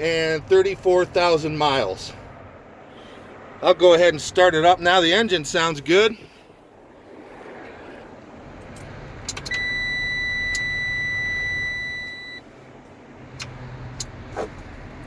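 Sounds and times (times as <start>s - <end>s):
dashboard warning buzzer: 9.5s - 12.4s
sharp clicks: 13.3s - 14.2s.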